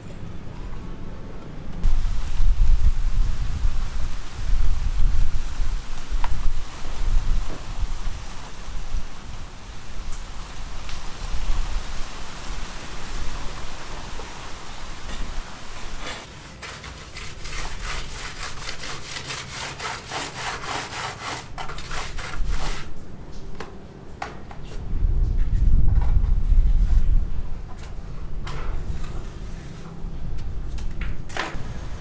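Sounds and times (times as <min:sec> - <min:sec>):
steady hiss: 0:01.8 - 0:16.7.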